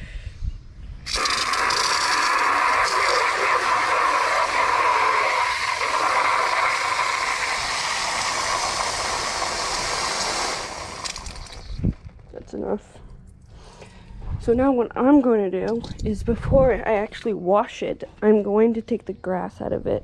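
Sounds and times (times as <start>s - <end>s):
water rushing from hose into bucket: 1.0s - 11.8s.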